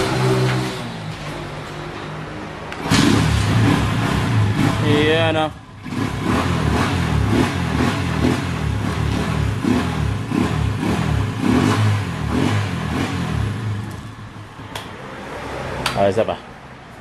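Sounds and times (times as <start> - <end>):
motorcycle engine revving: 0.0 - 1.3, 2.7 - 14.4.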